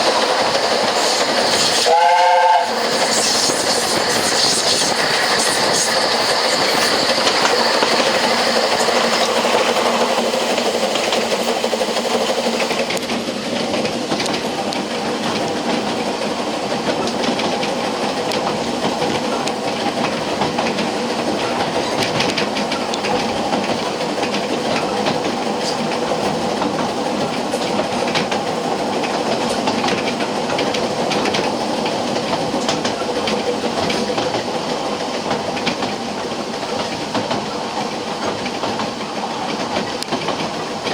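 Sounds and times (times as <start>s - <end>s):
high hiss: 0.0s - 12.8s
train rumble: 0.0s - 40.9s
wheels clicking over rail joints: 0.0s - 40.9s.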